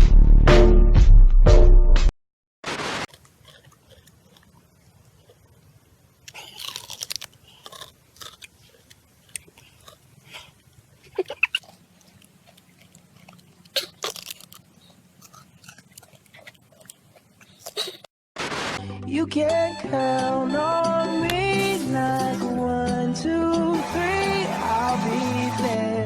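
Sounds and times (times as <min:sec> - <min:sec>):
pet crunching food: 0:03.1 - 0:18.1, 0:21.2 - 0:25.9.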